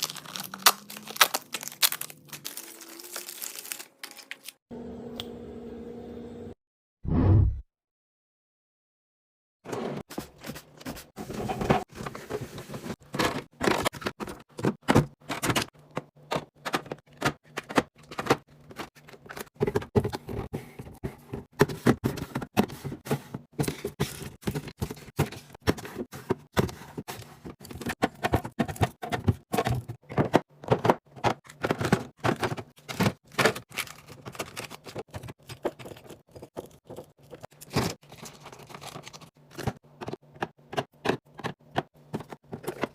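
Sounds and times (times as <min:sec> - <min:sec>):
packages knocking and scraping: 0:10.1 - 0:42.9.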